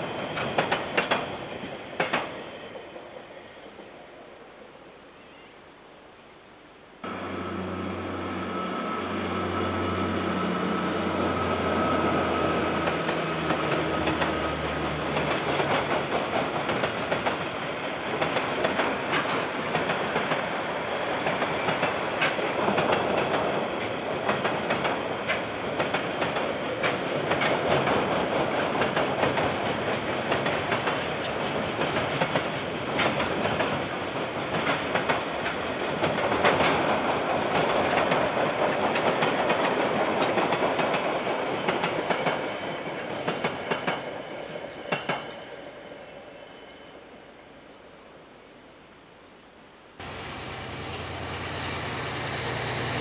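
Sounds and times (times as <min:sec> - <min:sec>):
low locomotive engine: 0:07.0 - 0:48.1, 0:50.0 - 0:53.0.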